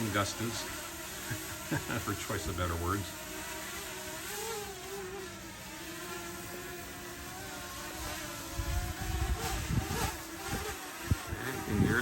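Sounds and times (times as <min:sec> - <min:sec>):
wind buffeting microphone: 0:08.5 - 0:12.0.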